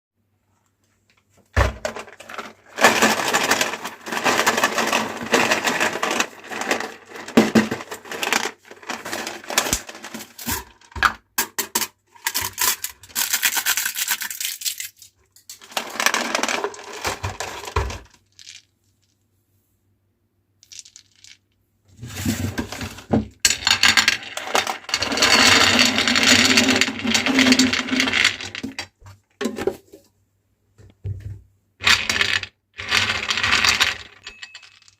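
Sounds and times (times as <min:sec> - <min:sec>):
grinder crushing hard candy: 0:02.0 - 0:10.8, 0:12.2 - 0:15.0, 0:15.6 - 0:18.1.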